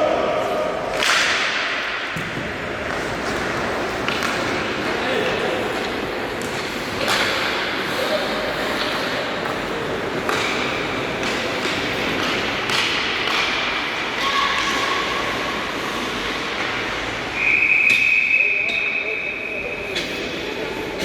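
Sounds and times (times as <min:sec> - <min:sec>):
hockey sticks and puck knocking: 0:00.9 - 0:07.7, 0:08.6 - 0:13.8.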